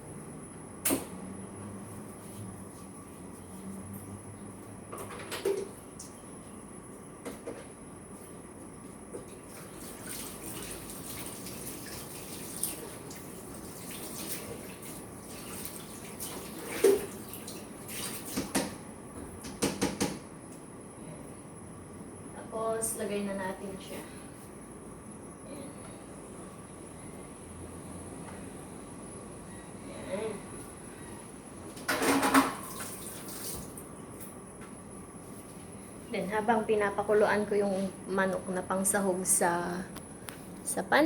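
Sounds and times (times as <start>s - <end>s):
tap water running into sink: 9.6s - 18.7s
dishes clattering: 31.9s - 32.7s.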